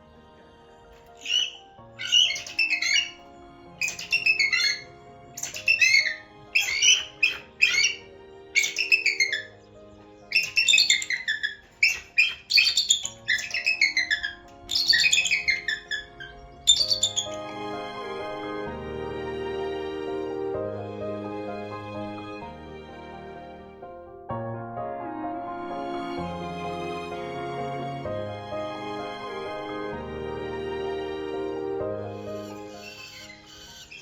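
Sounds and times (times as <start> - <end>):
background music: 0.0 - 34.0
bird squawking: 1.2 - 17.5, 32.2 - 34.0.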